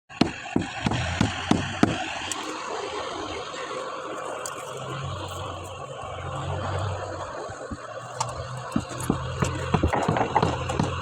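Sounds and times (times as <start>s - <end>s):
sharp knocks: 0.2s - 2.1s, 7.7s - 11.0s.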